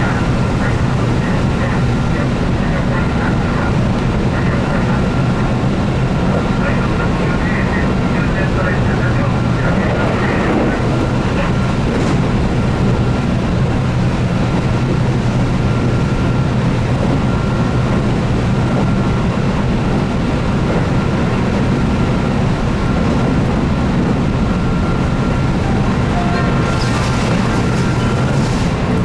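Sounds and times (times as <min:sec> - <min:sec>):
train wheels rumbling on rail: 0:07.8 - 0:29.0.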